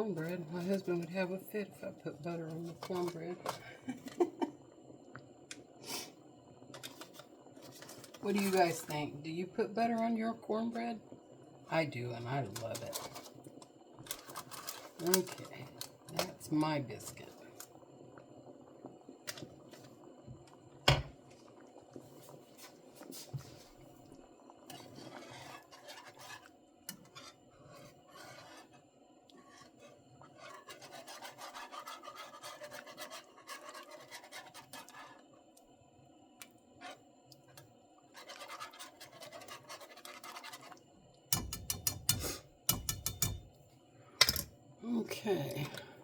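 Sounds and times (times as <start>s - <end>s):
utensils scraping and rubbing: 24.7s - 35.2s, 38.1s - 40.8s.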